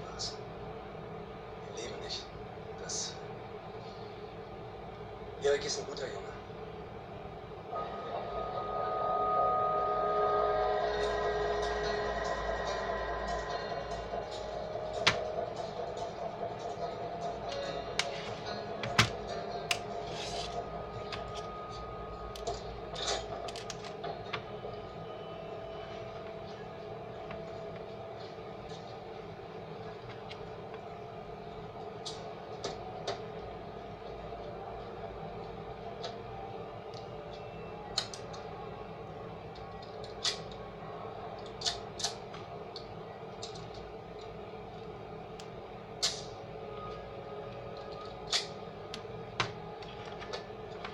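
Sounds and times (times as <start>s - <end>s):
low hum: 7.6s - 32.0s.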